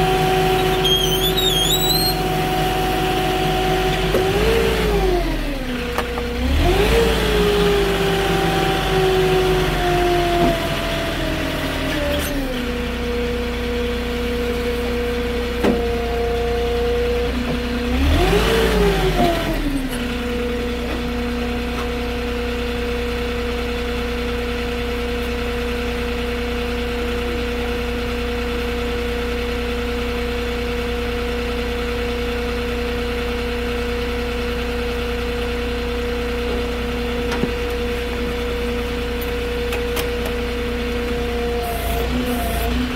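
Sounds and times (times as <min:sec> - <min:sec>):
forklift engine revving and idling: 0:00.0 - 0:42.9.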